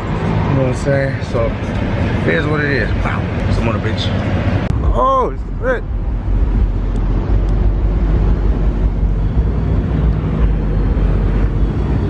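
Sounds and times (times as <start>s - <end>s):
vehicle engine running: 5.4s - 12.0s.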